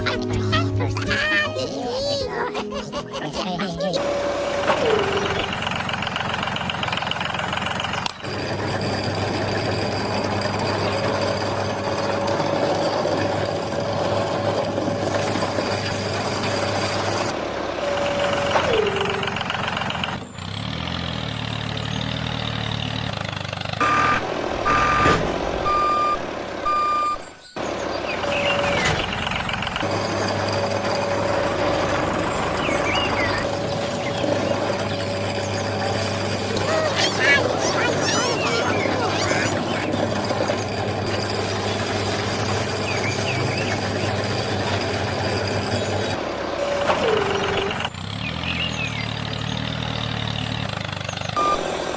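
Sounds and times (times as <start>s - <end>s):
toy tractor motor whining: 0.0s - 25.1s, 25.8s - 51.9s
short electronic beeps: 23.8s - 27.2s, 51.4s - 51.8s.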